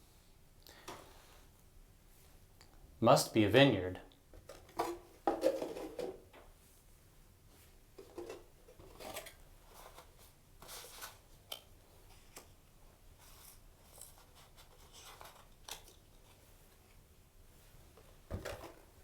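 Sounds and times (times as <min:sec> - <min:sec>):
wooden pieces rustling and scraping: 0:04.4 - 0:06.3, 0:08.0 - 0:11.2.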